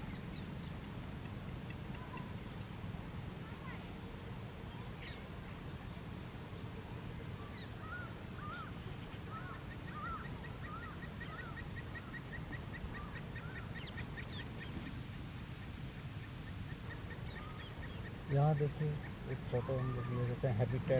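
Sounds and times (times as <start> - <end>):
waterbirds honking: 7.4 - 20.9.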